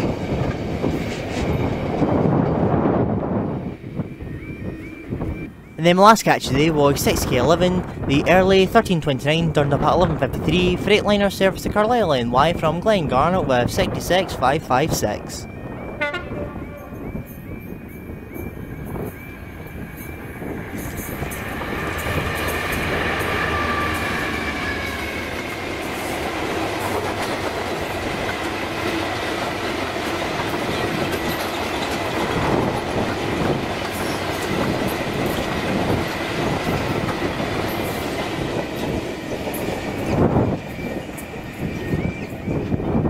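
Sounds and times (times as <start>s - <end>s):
train wheels rumbling: 0.0s - 5.5s, 15.5s - 43.0s
diesel locomotive engine: 0.0s - 43.0s
wheels clattering over rails: 20.7s - 41.6s.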